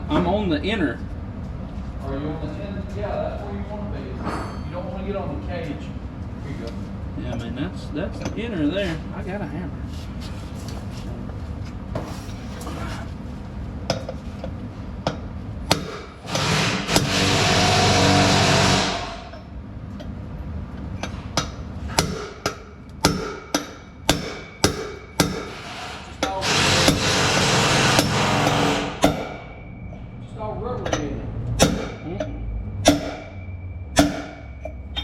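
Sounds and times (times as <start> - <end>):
steady whirring noise: 0.0 - 35.0
hammer blows on metal: 15.7 - 19.5, 21.4 - 29.9, 31.6 - 35.0.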